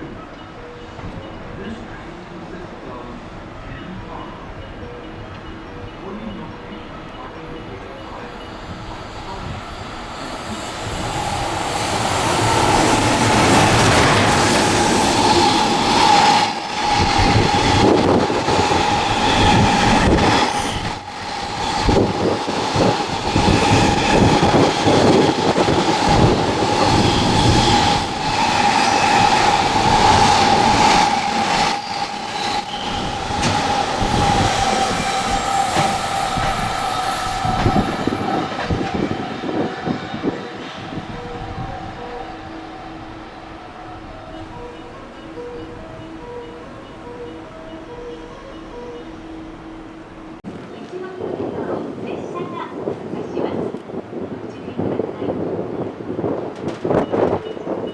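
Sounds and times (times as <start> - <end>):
high-pitched train whine: 0.0 - 52.0
electric train passing: 0.0 - 57.9.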